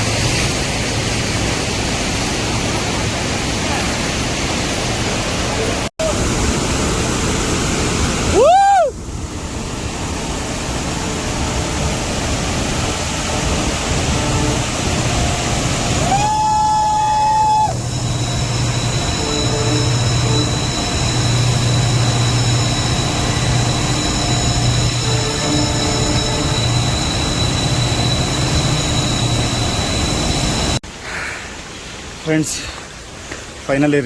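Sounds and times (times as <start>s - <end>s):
locomotive engine drone: 0.0s - 33.6s
steady rushing noise: 0.0s - 34.0s
train horn blasts: 10.9s - 16.1s, 17.7s - 30.7s.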